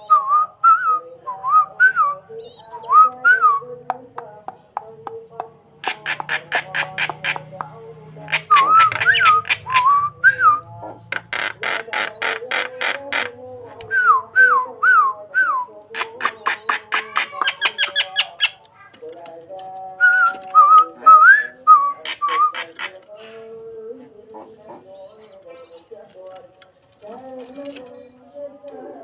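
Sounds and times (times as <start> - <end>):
starling whistling song: 0.0 - 3.7, 8.3 - 18.6, 20.0 - 23.0, 25.0 - 26.1.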